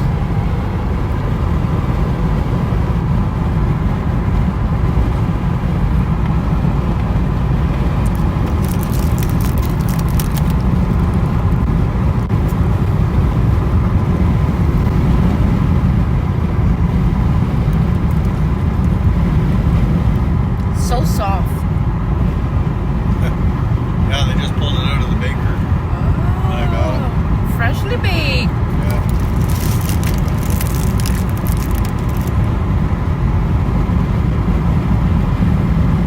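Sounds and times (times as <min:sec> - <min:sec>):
car driving road rumble: 0:00.0 - 0:36.0.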